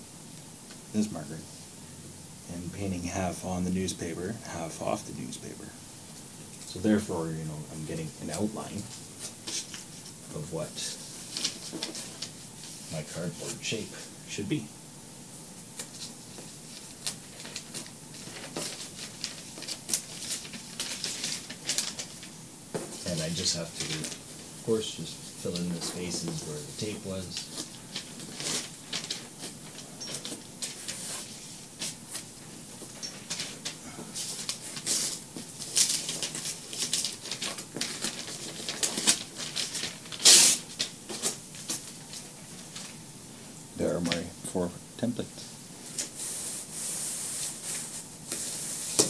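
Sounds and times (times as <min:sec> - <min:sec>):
paper rustling: 0:07.9 - 0:14.1, 0:15.7 - 0:43.0
scratchy strokes on paper: 0:46.0 - 0:49.0.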